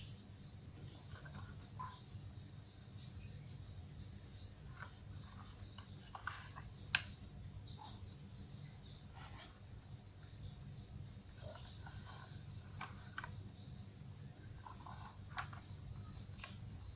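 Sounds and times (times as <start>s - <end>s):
faint high-pitched hiss: 0.0s - 16.9s
light clicks and taps: 4.7s - 7.2s.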